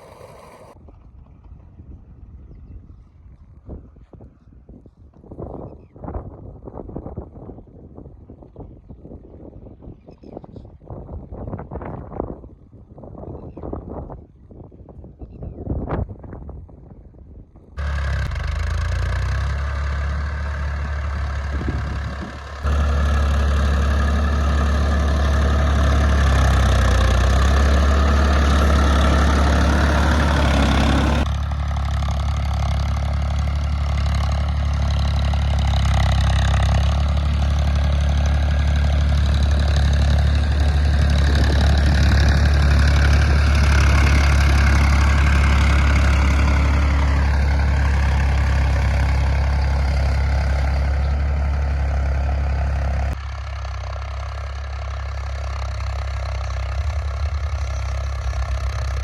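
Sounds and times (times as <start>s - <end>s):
diesel tractor engine running: 0.0s - 0.8s, 17.8s - 59.0s.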